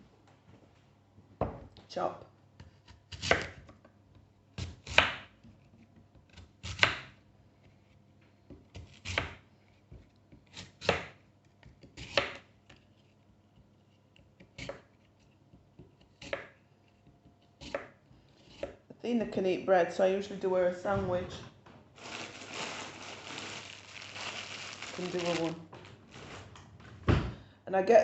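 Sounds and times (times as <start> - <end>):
knife chopping apple on board: 2.6 - 3.8, 4.6 - 5.3, 6.1 - 7.2, 8.5 - 12.4, 14.4 - 15.0, 15.6 - 18.8.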